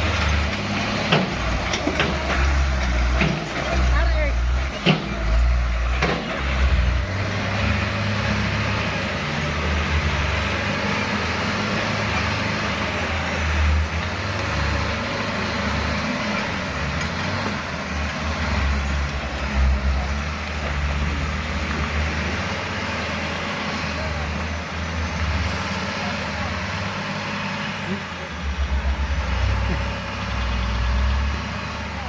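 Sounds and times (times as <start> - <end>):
diesel truck engine running: 0.0 - 32.0.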